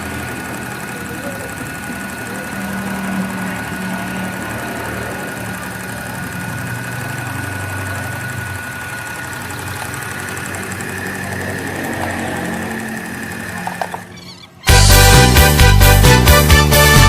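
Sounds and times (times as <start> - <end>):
sewing machine motor whining: 0.0 - 17.0.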